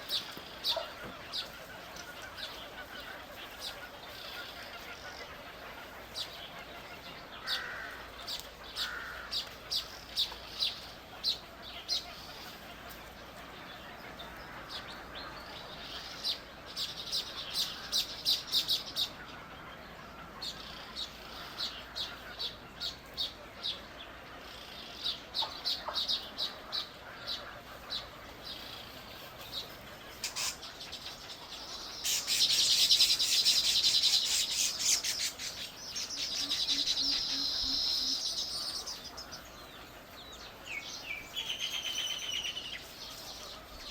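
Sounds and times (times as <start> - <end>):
songbirds chirping: 0.0 - 43.9
bird trilling: 30.1 - 39.6.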